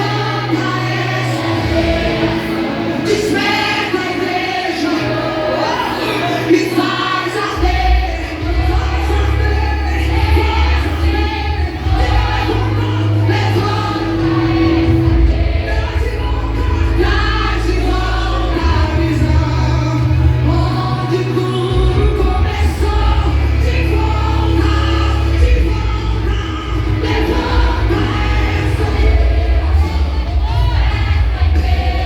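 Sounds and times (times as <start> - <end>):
gospel singing voices: 0.0 - 32.0
sustained bass line: 7.6 - 32.0.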